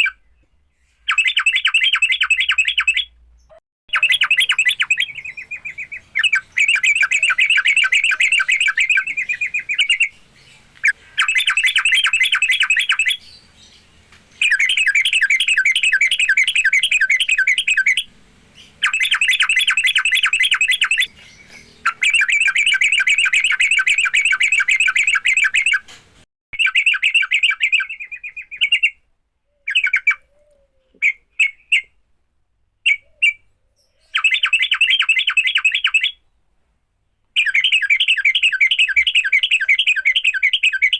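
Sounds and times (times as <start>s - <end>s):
bird chattering trills: 3.9s - 25.9s, 37.4s - 40.9s.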